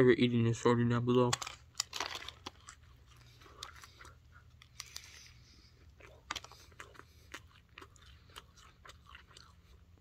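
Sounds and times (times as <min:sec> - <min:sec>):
crisp shell crunches: 0:01.3 - 0:05.2
person chewing: 0:01.5 - 0:10.0.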